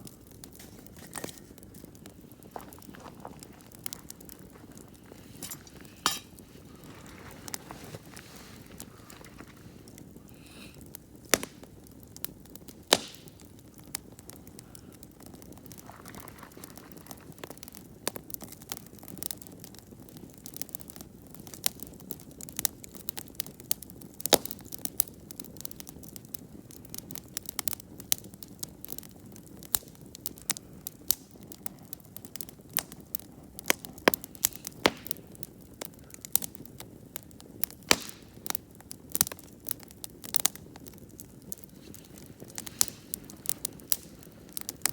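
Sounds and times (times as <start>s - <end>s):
flames hissing: 0.0s - 18.3s, 40.0s - 44.9s
campfire crackling and popping: 0.0s - 44.9s.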